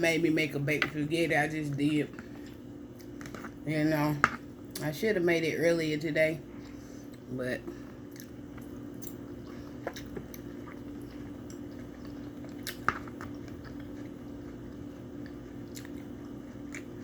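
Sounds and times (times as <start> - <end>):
steady low hum: 0.0 - 17.0
person chewing and biting food: 8.1 - 17.0.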